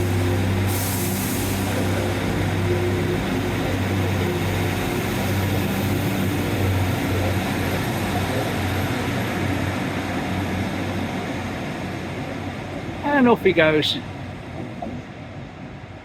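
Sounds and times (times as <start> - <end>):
broad hiss: 0.0 - 2.6
train engine humming: 0.0 - 16.0.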